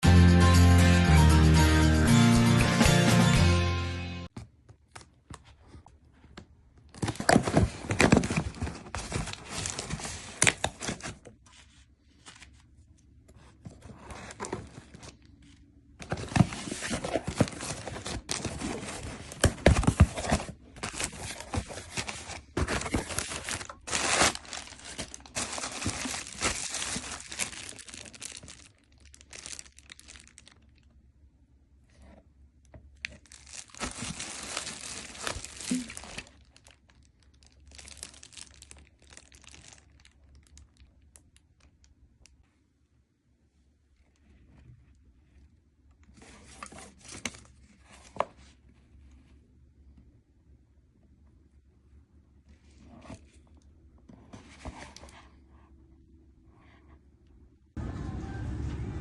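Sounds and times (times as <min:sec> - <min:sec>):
packaging crinkling: 0:16.0 - 0:30.9, 0:33.0 - 0:41.7.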